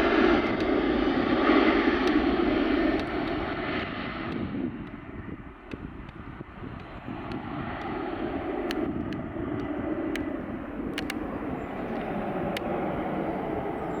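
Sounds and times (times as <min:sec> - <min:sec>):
jet engines rumbling: 0:00.0 - 0:14.0
faint clicks: 0:10.9 - 0:11.2.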